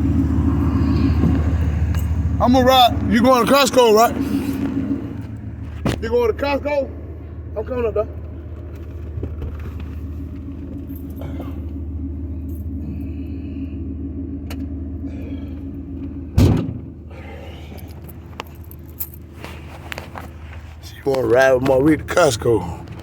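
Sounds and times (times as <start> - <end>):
car engine humming: 0.0 - 23.0
loud thump: 16.4 - 17.0.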